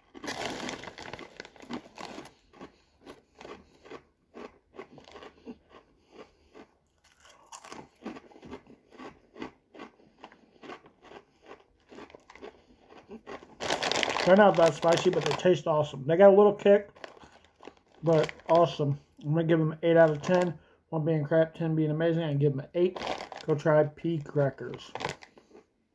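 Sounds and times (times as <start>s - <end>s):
crackers being crunched: 0.0s - 15.7s, 16.9s - 18.8s, 19.9s - 20.5s, 22.9s - 25.6s.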